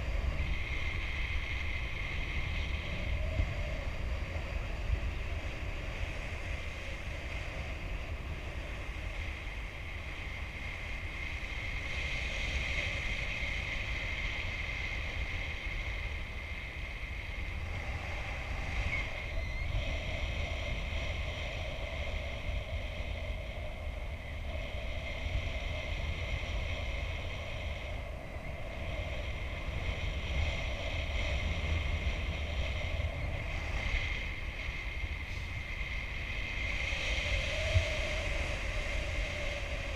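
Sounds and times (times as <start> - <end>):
wind buffeting microphone: 0.0 - 39.9
thin steady whistle: 17.3 - 20.2.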